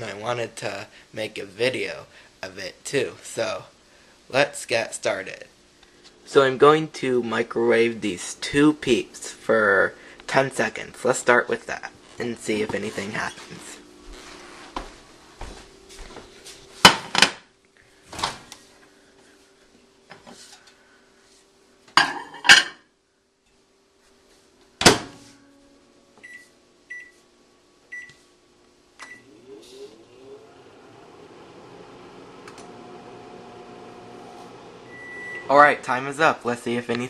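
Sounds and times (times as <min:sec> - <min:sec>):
microwave oven humming: 0:07.4 - 0:16.8, 0:24.6 - 0:36.4
microwave keypad beeps: 0:26.2 - 0:27.2, 0:27.9 - 0:28.2, 0:29.0 - 0:29.3, 0:34.9 - 0:35.5.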